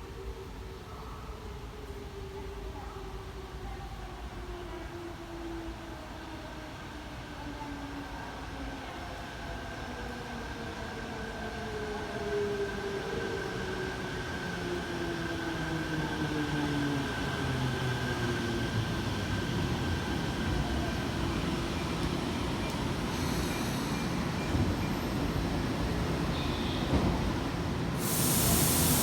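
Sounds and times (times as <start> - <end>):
train braking: 21.0 - 29.0.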